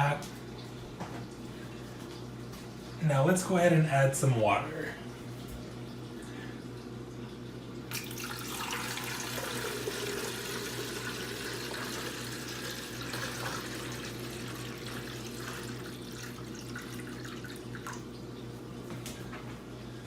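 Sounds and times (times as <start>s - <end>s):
water pouring into reservoir: 7.9s - 18.1s.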